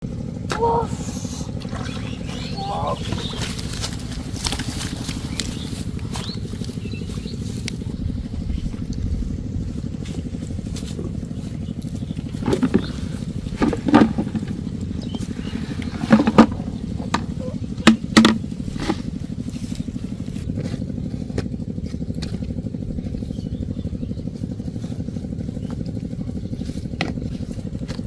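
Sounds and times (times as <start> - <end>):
small engine running: 0.0 - 28.0
sharp knocks and clatters: 12.4 - 19.1.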